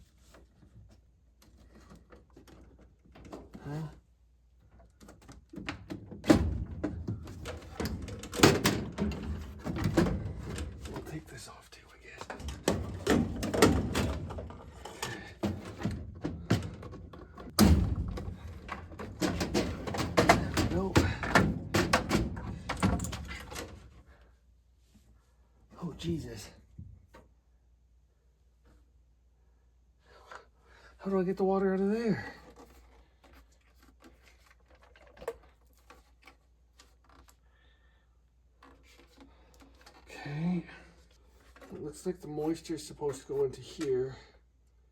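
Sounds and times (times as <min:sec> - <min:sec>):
furnace parts clicking and knocking: 0:04.6 - 0:11.4, 0:12.0 - 0:24.2.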